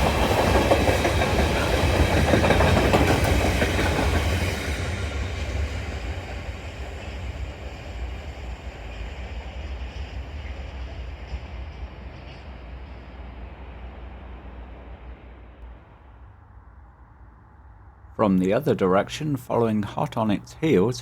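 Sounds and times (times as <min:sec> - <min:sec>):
train wagons clickety-clack: 0:00.0 - 0:13.6.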